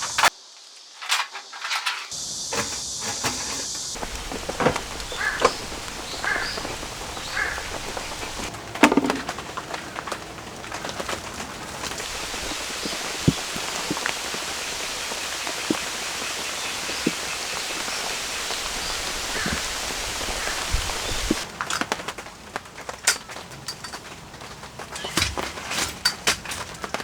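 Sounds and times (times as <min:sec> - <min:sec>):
steady rain falling: 0:02.2 - 0:27.0
heavy drops landing: 0:02.6 - 0:21.4.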